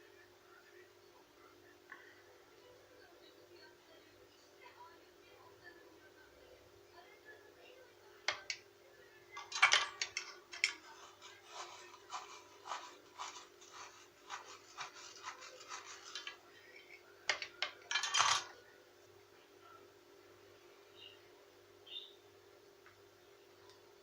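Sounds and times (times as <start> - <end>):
irregular scraping strokes: 10.6 - 17.0.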